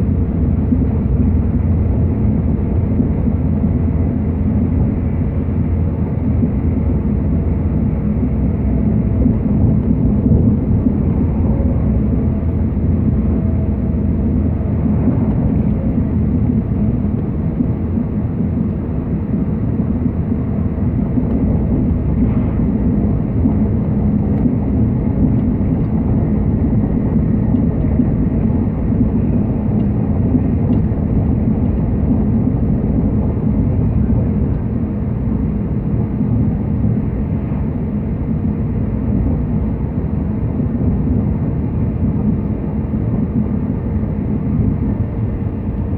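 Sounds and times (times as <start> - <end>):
train rumbling inside carriage: 0.0 - 45.9.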